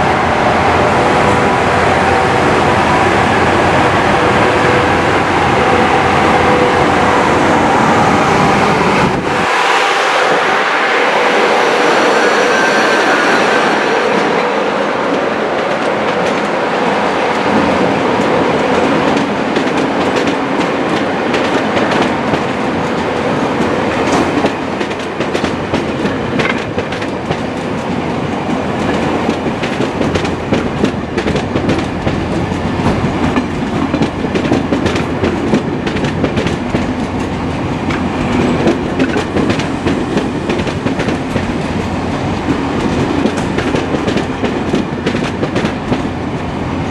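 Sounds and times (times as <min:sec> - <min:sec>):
train rumble: 0:00.0 - 0:46.9
train wheels clattering on rails: 0:12.1 - 0:46.9.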